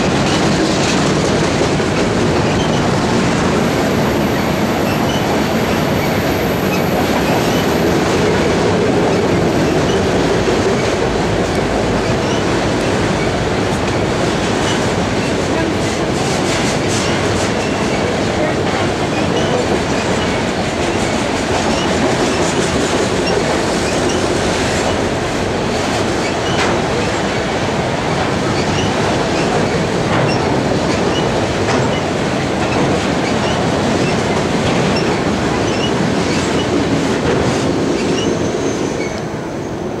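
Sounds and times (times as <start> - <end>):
clicks of train wheels: 0.0 - 40.0
train wheels rumbling on rail: 0.0 - 40.0
high wheel squeaks: 2.4 - 3.0, 4.8 - 10.1, 12.0 - 13.4, 19.1 - 25.1, 28.6 - 32.1, 32.7 - 36.8, 38.0 - 39.3.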